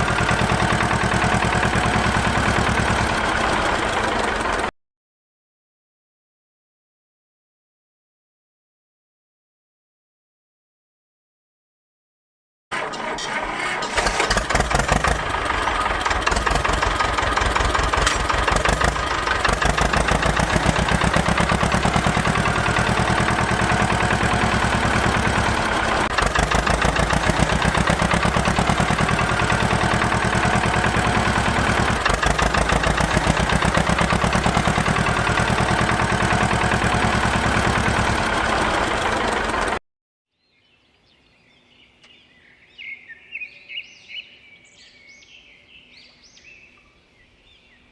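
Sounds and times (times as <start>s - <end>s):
small engine running: 0.0s - 4.7s, 12.8s - 39.8s.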